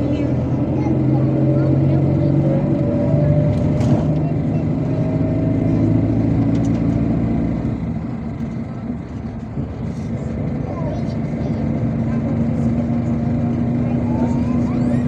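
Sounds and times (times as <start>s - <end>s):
bus engine running: 0.0s - 15.0s
road noise: 0.0s - 15.0s.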